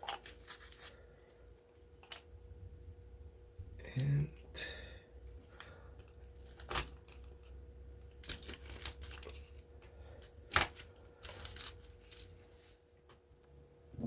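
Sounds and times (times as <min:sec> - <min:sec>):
crinkling crackling rustle: 0:00.0 - 0:02.2, 0:05.4 - 0:12.8.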